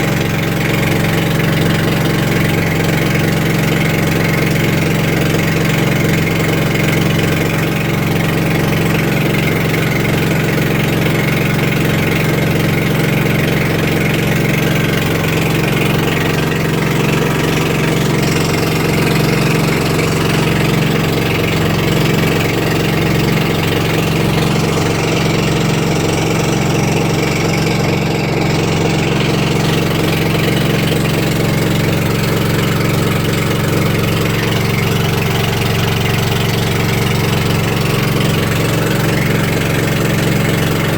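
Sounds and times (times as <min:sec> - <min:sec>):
boat engine droning: 0:00.0 - 0:40.9.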